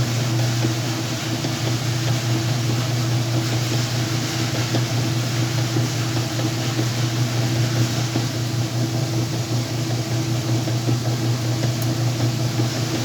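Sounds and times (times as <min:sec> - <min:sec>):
washing machine motor hum: 0:00.0 - 0:13.0.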